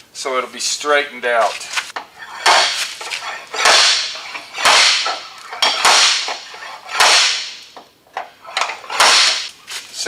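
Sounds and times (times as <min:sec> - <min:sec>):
slide hammer slamming: 0:02.4 - 0:07.7, 0:08.6 - 0:09.5.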